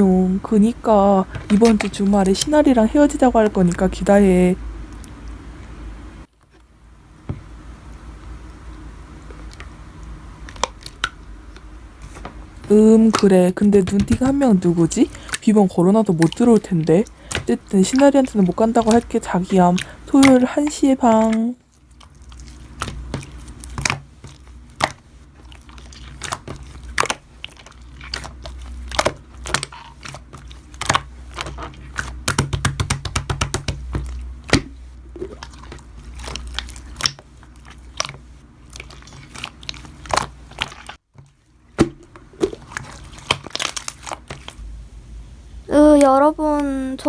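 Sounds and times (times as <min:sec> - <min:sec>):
slime clicking and popping: 0:36.3 - 0:37.2.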